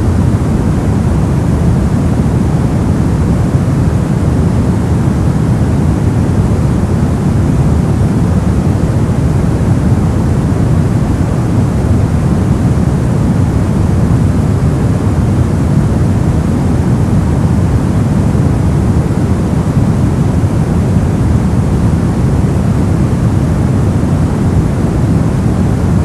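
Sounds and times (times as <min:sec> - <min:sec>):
brown noise hiss: 0:00.0 - 0:26.0.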